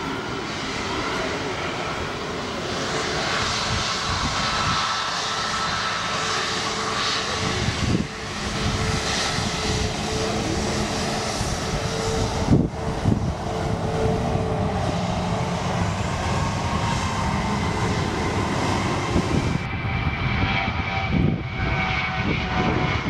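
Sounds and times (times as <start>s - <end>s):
jet engines running: 0.0s - 23.0s
wind buffeting microphone: 0.0s - 23.0s.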